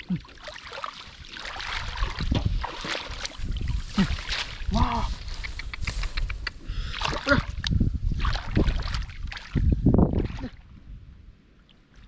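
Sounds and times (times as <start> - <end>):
splashing in shallow water: 0.0 - 10.8.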